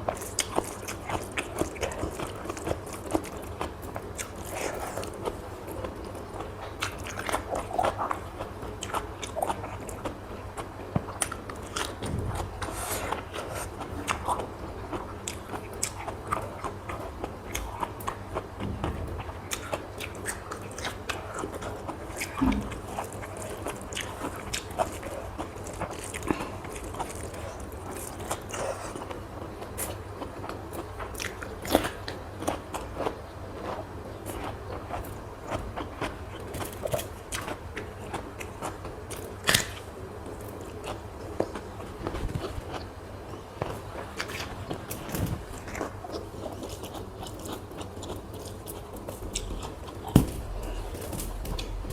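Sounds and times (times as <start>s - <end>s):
person chewing: 0.1s - 18.6s, 19.2s - 29.2s, 29.8s - 41.8s, 43.6s - 51.9s.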